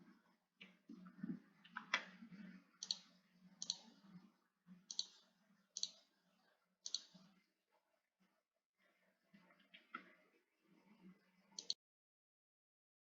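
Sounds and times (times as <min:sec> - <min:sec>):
mouse button clicks: 0:02.8 - 0:03.8, 0:06.9 - 0:07.1.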